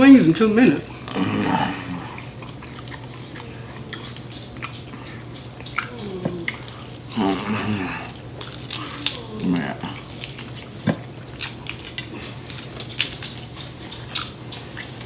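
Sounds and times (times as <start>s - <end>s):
low steady hum: 0.0s - 15.0s
people chewing chicken wings: 0.3s - 15.0s
wet mouth clicks and smacks: 3.9s - 7.0s, 10.2s - 15.0s.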